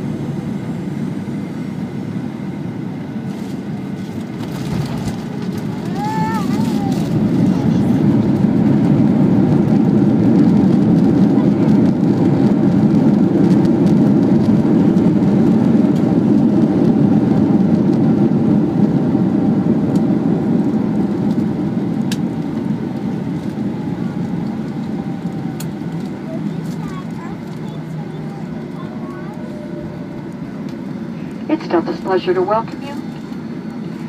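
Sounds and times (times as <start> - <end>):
jet engines rumbling in cabin: 0.0 - 34.0.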